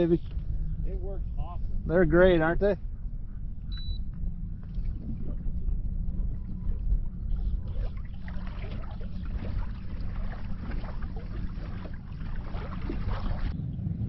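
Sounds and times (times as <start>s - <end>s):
wind rumble on microphone: 0.0s - 14.0s
water splashing against kayak hull: 4.1s - 13.5s.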